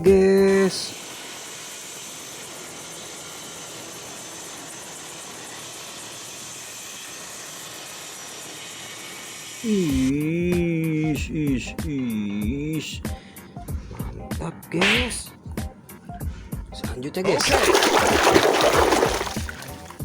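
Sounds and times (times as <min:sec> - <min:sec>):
helicopter engine and rotor: 0:00.8 - 0:10.3.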